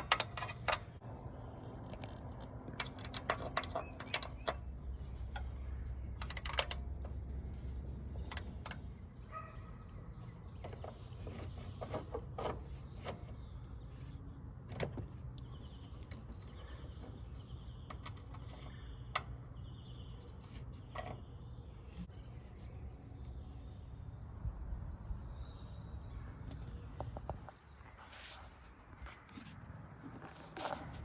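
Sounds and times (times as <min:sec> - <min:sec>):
tools and parts clicking: 0:00.0 - 0:01.0, 0:01.6 - 0:09.1.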